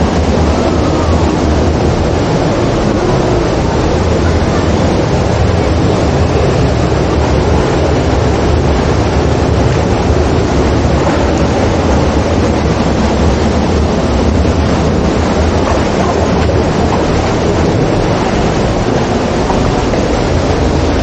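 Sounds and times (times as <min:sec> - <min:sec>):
motorbike engine drone: 0:00.0 - 0:21.0
wind and road noise: 0:00.0 - 0:21.0.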